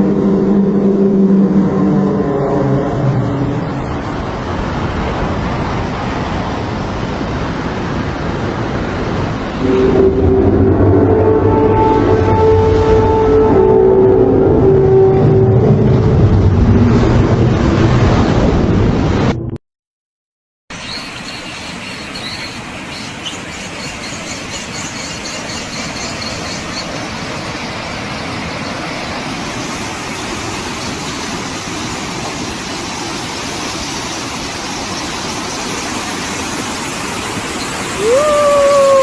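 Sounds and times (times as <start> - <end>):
floodwater rushing: 0.0 - 19.2, 20.8 - 39.0
loud high-pitched squeal: 9.6 - 16.4.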